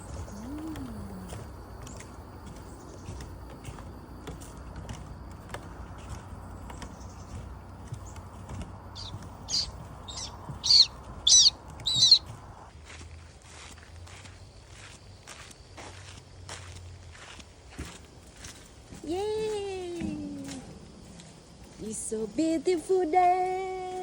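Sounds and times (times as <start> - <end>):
bird chirping: 0.0 - 12.7.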